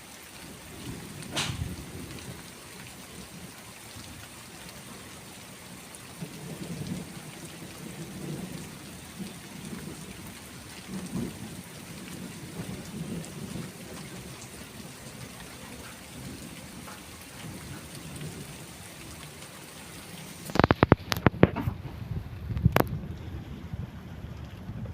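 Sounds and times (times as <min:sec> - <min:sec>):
steady rain: 0:00.0 - 0:24.9
thunder rolling: 0:00.8 - 0:02.4, 0:06.2 - 0:19.4
sharp loud knocks: 0:01.3 - 0:01.7.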